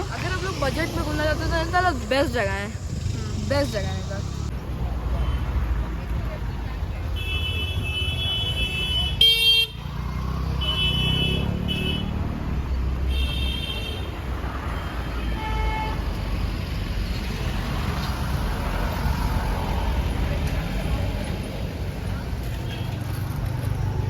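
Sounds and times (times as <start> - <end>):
road traffic noise: 0.0 - 24.0
vehicle horns honking: 7.2 - 9.9, 10.5 - 12.3, 13.1 - 14.2, 14.9 - 16.0.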